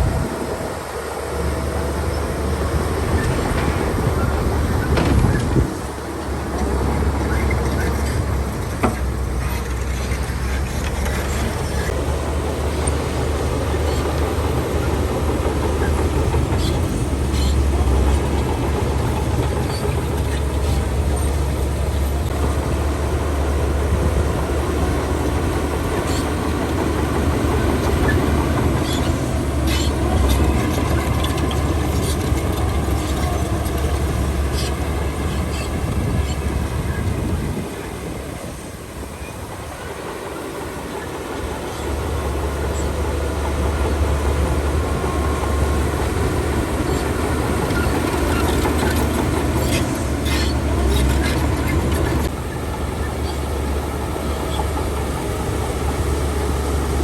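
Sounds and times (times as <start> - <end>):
bulldozer diesel engine droning: 0.0 - 57.0
metallic clanks of steel tracks: 2.0 - 22.4, 25.8 - 57.0.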